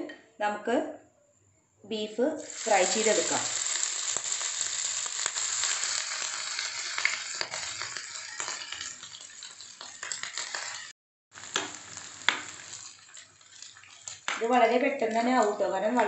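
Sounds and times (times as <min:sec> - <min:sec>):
meat sizzling in hot oil: 0:02.4 - 0:16.0
spoon stirring in pan: 0:07.0 - 0:10.9, 0:11.5 - 0:16.0.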